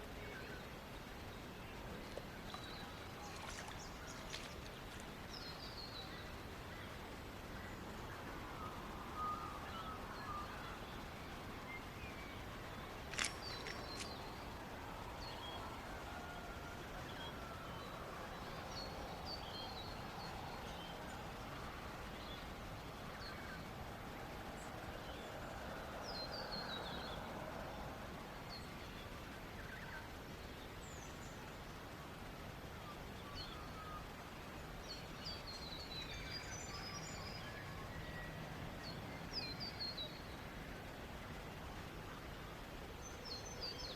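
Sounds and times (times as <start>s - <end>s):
running river water: 0.0s - 43.9s
small birds chirping: 9.2s - 14.6s.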